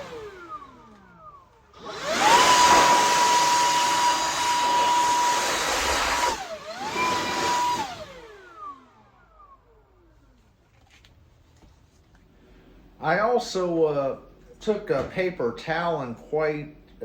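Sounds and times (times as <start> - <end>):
electric blower motor whine: 0.0 - 10.4.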